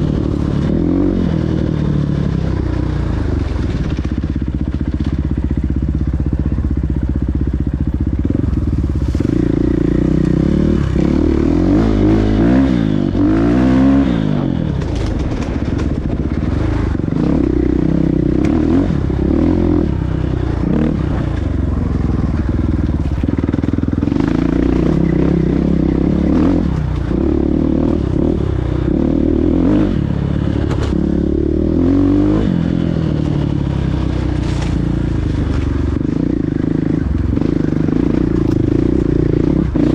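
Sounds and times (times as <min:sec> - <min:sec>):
dirt bike engines revving: 0:08.0 - 0:39.9.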